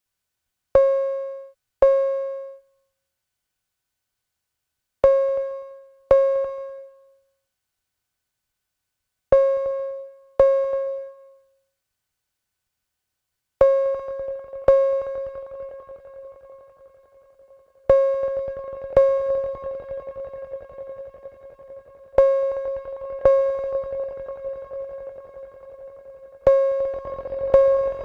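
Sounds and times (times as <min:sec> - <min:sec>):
plucked synthesizer note with reverb: 0:13.7 - 0:28.0.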